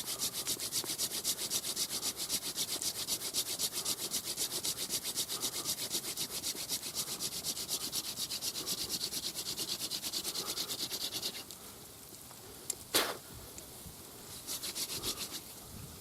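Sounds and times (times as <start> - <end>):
rubbing on wood: 0.0 - 11.5, 14.3 - 15.6.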